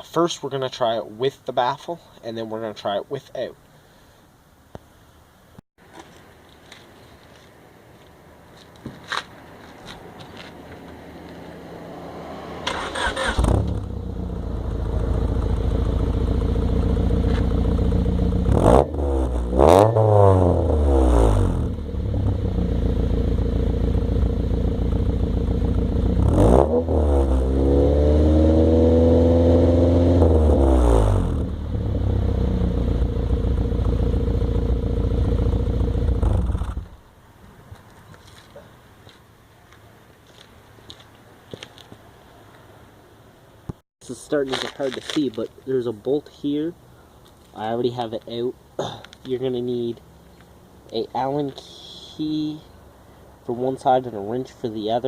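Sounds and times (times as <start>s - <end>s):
car engine idling and revving: 10.4s - 37.1s.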